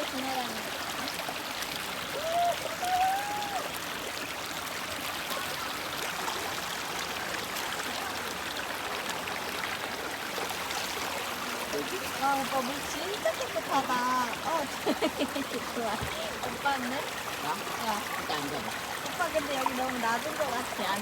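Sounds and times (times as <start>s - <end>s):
stream flowing over rocks: 0.0s - 21.0s.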